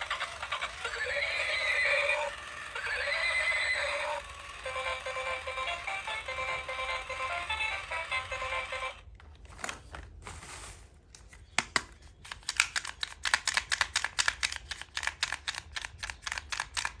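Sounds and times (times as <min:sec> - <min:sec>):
fast light clicks and taps: 0:11.6 - 0:17.0.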